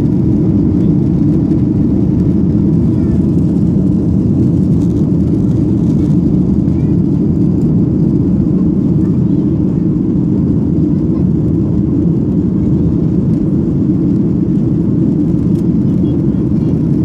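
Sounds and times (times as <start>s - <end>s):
jet engines roaring at take-off: 0.0s - 17.0s.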